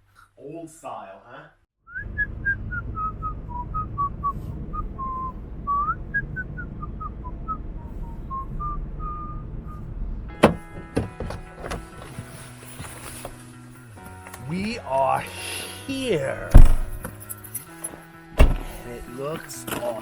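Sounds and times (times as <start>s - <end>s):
person whistling a tune: 1.9s - 9.8s
low rumbling handling noise: 2.2s - 13.4s, 16.5s - 17.2s, 18.4s - 18.9s
music: 10.3s - 20.0s
sharp knocks: 10.4s - 11.8s, 16.5s - 17.1s, 18.4s - 18.7s.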